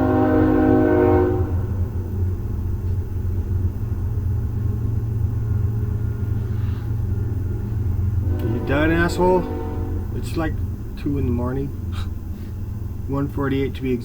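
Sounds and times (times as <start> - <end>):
train horn multi-tone chord: 0.0 - 1.9, 8.2 - 10.3
train rumbling past: 0.0 - 14.0.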